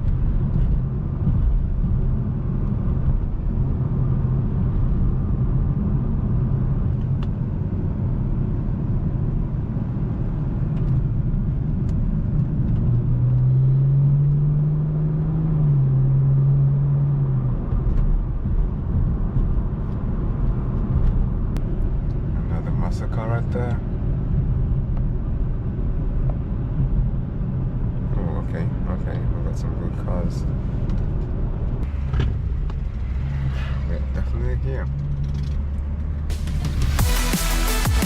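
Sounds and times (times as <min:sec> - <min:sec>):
low road rumble: 0:00.0 - 0:38.0
car engine running: 0:17.4 - 0:38.0.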